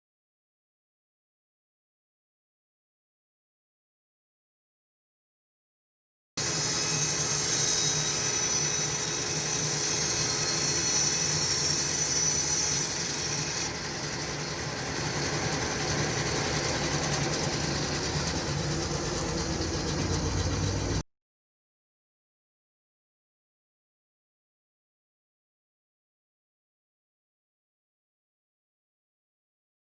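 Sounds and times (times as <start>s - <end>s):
band sawmill cutting wood: 6.4s - 21.0s.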